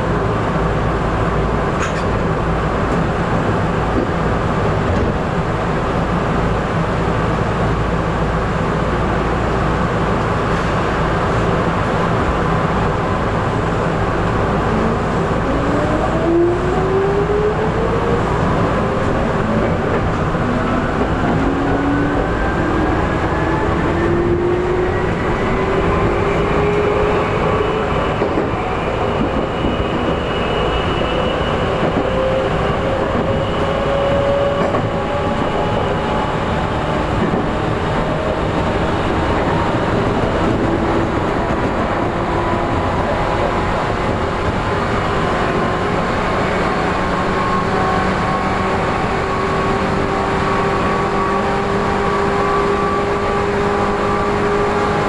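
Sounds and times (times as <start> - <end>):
wheel and rail rumble: 0.0 - 55.0
train traction motor whine: 14.2 - 55.0.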